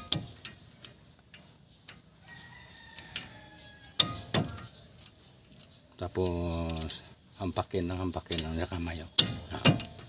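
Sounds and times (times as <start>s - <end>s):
rooster crowing: 2.2s - 4.2s
sharp metallic knocks: 4.0s - 4.8s, 8.3s - 10.0s.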